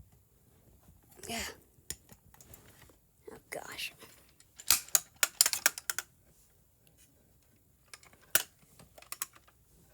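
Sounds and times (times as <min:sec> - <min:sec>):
clicks and taps of model car parts: 0:04.4 - 0:06.1, 0:07.8 - 0:09.6.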